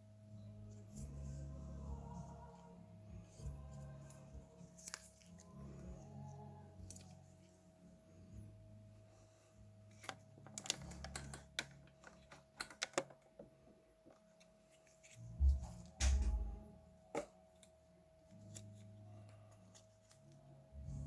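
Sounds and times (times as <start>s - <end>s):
small parts clicking: 9.9s - 13.5s
heavy low thuds: 15.4s - 16.6s.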